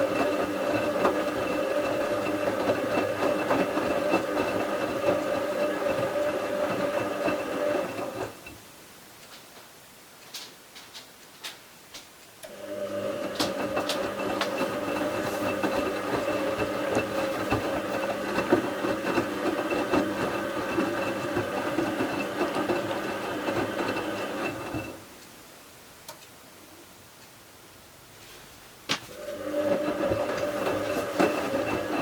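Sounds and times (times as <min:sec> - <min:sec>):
washing machine drum motor whine: 0:00.0 - 0:08.5, 0:12.5 - 0:25.1, 0:29.0 - 0:32.0.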